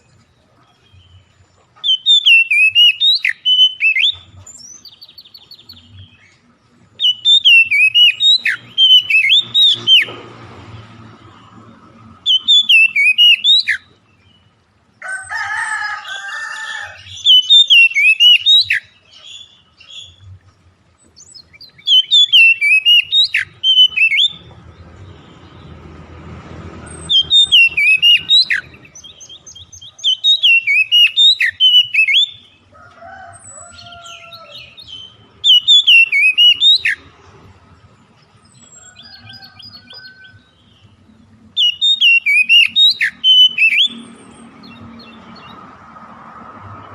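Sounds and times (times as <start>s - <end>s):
harsh bird calls: 0.0s - 46.9s
songbird whistled phrases: 1.9s - 6.1s, 7.0s - 10.1s, 12.3s - 13.9s, 17.0s - 20.2s, 21.3s - 24.4s, 27.0s - 32.5s, 33.8s - 37.1s, 41.6s - 44.0s.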